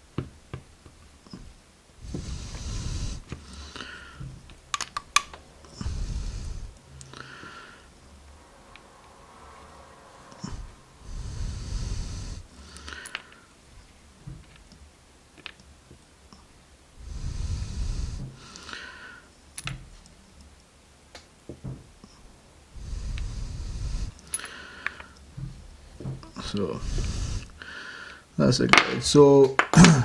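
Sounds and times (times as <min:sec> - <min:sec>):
person breathing close to microphone: 0:02.0 - 0:13.6, 0:17.0 - 0:19.3, 0:22.7 - 0:28.4
small sharp clicks of lock parts: 0:04.7 - 0:05.4, 0:12.8 - 0:13.4, 0:19.6 - 0:20.6, 0:24.2 - 0:25.3.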